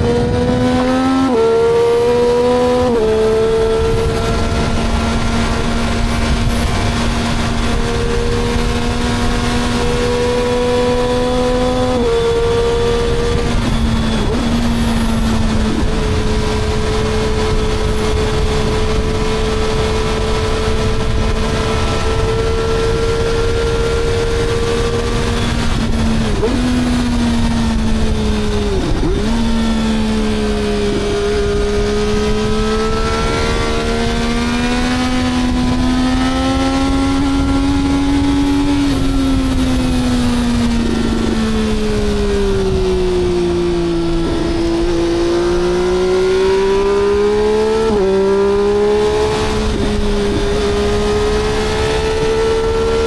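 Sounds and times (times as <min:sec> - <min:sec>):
engine running under load: 0:00.0 - 0:19.1.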